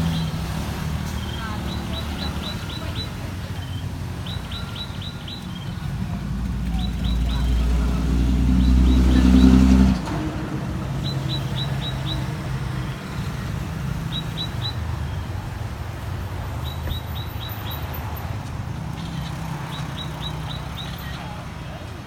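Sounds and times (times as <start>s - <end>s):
high falling bird chirps: 10.9s - 15.3s.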